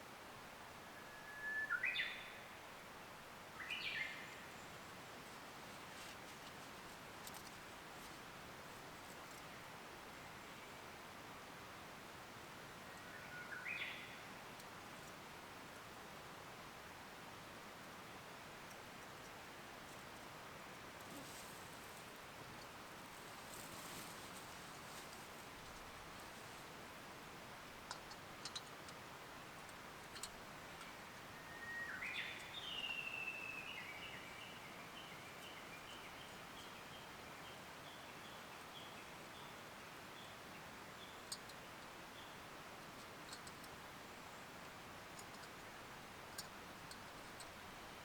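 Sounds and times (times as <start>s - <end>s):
faint background noise: 0.0s - 48.0s
bird whistled call: 1.0s - 2.4s, 31.3s - 34.0s.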